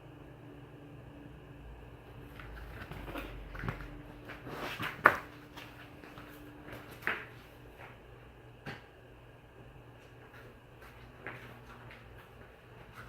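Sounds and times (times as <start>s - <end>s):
ceiling fan motor hum: 0.0s - 13.0s.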